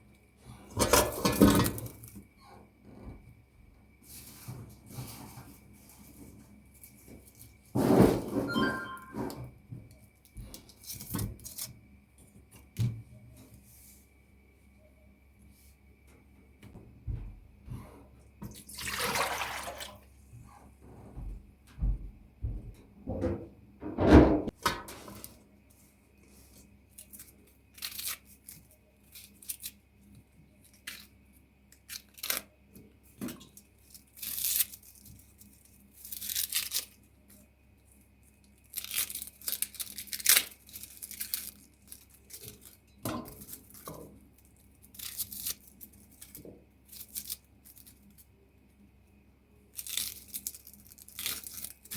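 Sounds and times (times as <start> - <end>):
water splashing in kitchen: 18.4 - 20.1.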